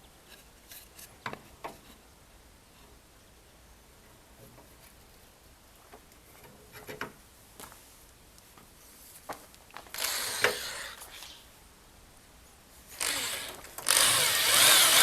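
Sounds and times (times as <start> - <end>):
noisy tool scrape: 12.9 - 15.0.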